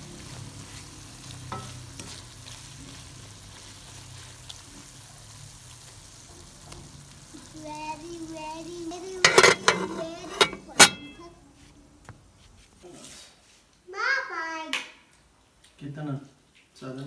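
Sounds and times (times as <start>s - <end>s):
food sizzling in a pan: 0.0s - 11.9s
wooden spatula scraping a pan: 9.0s - 11.3s.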